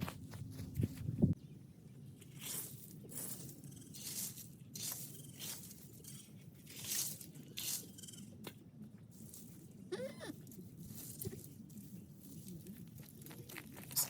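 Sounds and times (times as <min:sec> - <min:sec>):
dry branches rustling and crackling: 0:02.1 - 0:08.0, 0:09.0 - 0:14.0.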